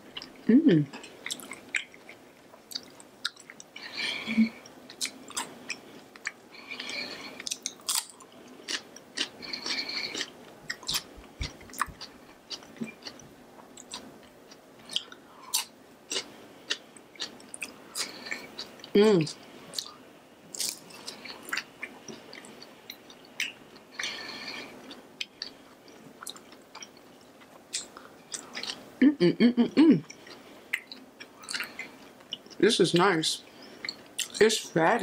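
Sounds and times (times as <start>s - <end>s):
person humming: 0.5s - 1.0s, 4.0s - 4.6s, 29.0s - 30.1s
wet chewing and lip smacks: 1.0s - 4.0s, 4.9s - 18.9s, 19.7s - 28.8s, 30.1s - 32.6s, 33.8s - 34.4s.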